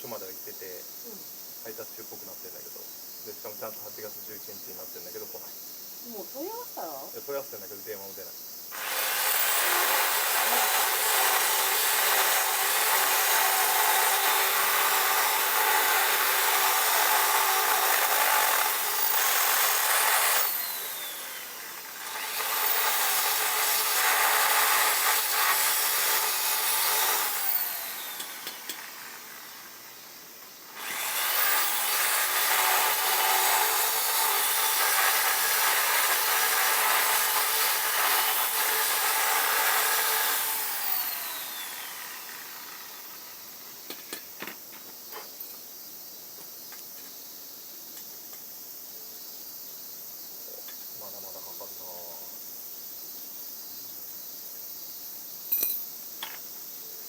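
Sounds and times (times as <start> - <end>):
power tool rasping on a surface: 8.8 - 29.6, 30.8 - 43.2.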